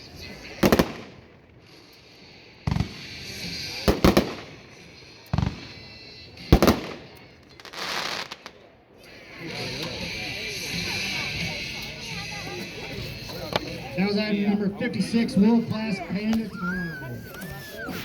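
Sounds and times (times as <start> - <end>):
firework crackling hiss: 0.0 - 8.6, 17.1 - 18.0.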